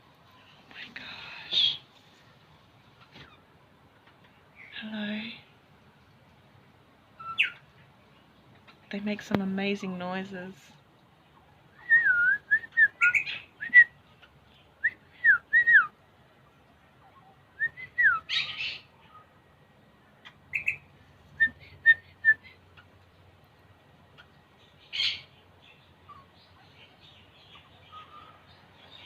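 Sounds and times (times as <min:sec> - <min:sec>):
parrots whistling calls: 0:07.2 - 0:07.6, 0:11.9 - 0:13.9, 0:20.5 - 0:20.9
harsh scratchy bird calls: 0:07.2 - 0:07.7, 0:13.0 - 0:13.6, 0:18.3 - 0:18.9, 0:20.2 - 0:20.9, 0:24.1 - 0:29.0.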